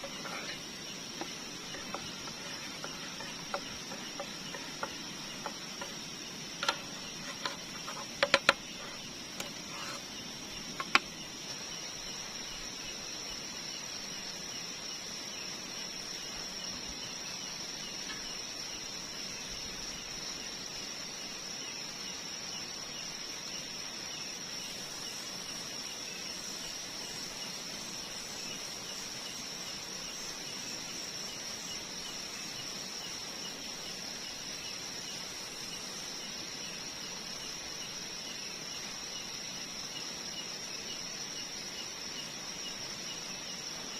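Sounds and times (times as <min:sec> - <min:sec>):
high-pitched insect chorus: 0:00.0 - 0:43.9
sharp clicks and knocks: 0:01.2 - 0:06.0, 0:06.6 - 0:10.0, 0:10.7 - 0:11.2.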